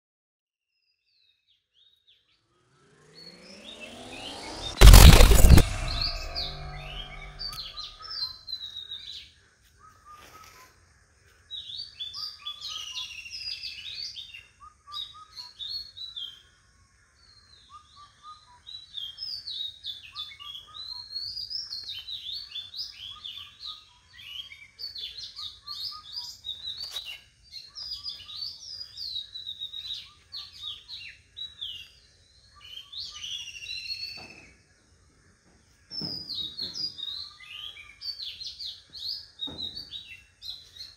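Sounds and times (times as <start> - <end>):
birds chirping and twittering: 8.6 - 40.9.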